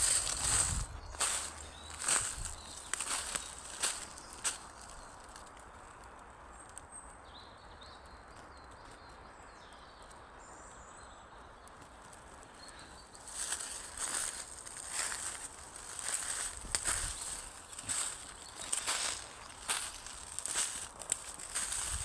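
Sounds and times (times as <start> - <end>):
footsteps rustling on forest floor: 0.0 - 5.6, 12.7 - 22.0
small birds chirping: 0.0 - 22.0.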